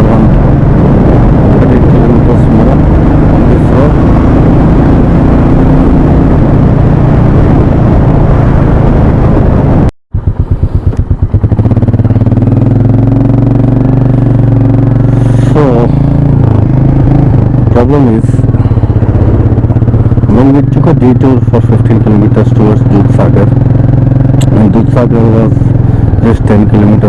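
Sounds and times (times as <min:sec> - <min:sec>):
motorcycle engine running: 0:00.0 - 0:27.0
wind noise: 0:00.0 - 0:27.0
motorcycle engine idling: 0:10.1 - 0:27.0.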